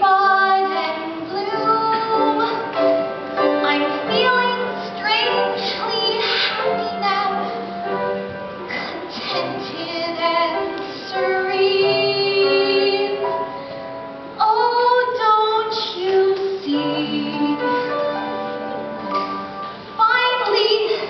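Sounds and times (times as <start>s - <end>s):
woman singing a ballad: 0.0s - 7.7s, 9.3s - 13.3s, 14.4s - 18.1s, 20.0s - 21.0s
instrumental accompaniment: 0.0s - 21.0s.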